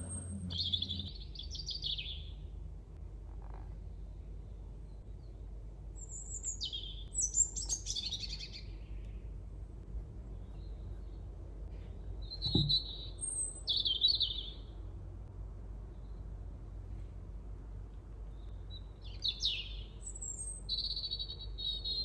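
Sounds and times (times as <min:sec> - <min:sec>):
songbird chirping: 0:00.0 - 0:02.6, 0:03.7 - 0:09.6, 0:10.2 - 0:14.8, 0:18.2 - 0:22.0
low steady hum: 0:00.0 - 0:19.2
soft knock: 0:12.4 - 0:12.8.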